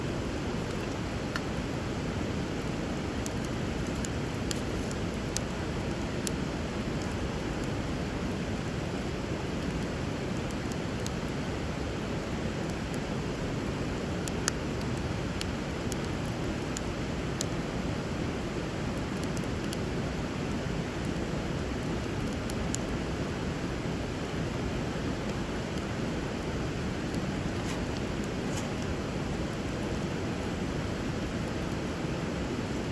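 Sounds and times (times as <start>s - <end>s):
wood fire crackling: 0.0s - 32.9s
bonfire pops and crackles: 2.4s - 7.7s.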